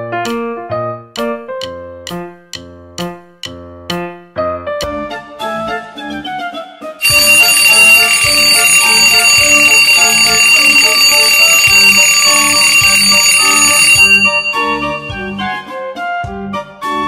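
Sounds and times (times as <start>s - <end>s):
electric alarm bell ringing: 7.0s - 15.7s.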